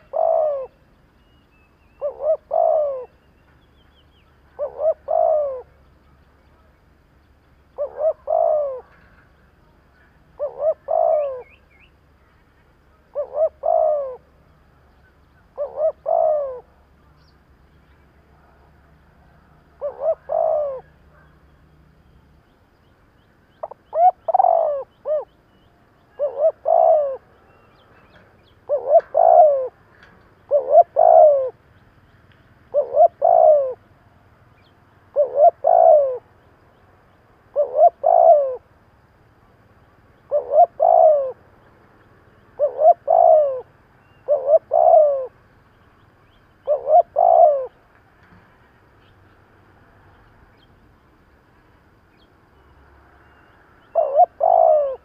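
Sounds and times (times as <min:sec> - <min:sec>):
dove cooing: 0:00.0 - 0:00.8, 0:01.8 - 0:03.4, 0:04.2 - 0:05.8, 0:07.8 - 0:11.8, 0:12.9 - 0:17.0, 0:18.2 - 0:21.5, 0:23.6 - 0:31.6, 0:32.7 - 0:33.9, 0:34.6 - 0:36.3, 0:37.5 - 0:38.7, 0:40.2 - 0:41.4, 0:42.3 - 0:45.4, 0:46.6 - 0:47.9, 0:53.3 - 0:55.0.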